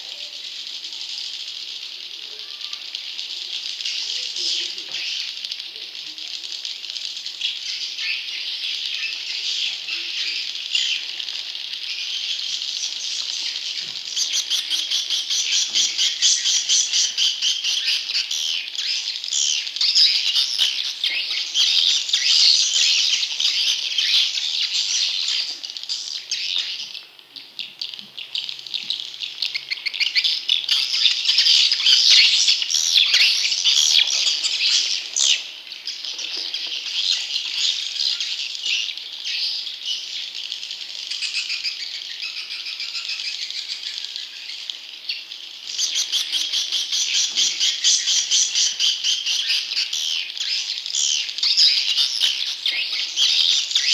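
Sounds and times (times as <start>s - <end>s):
bird chicks buzzing chatter: 0.0s - 53.9s.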